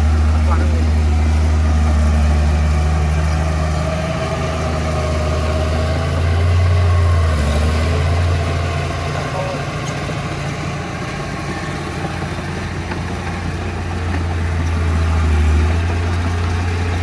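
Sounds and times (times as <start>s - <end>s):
heavy machinery diesel engine: 0.0s - 17.0s.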